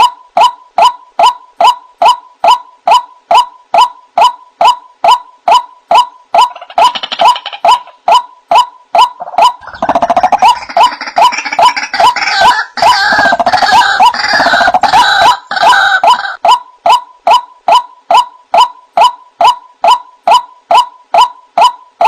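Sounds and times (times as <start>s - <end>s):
waterhen calling: 9.0s - 17.4s.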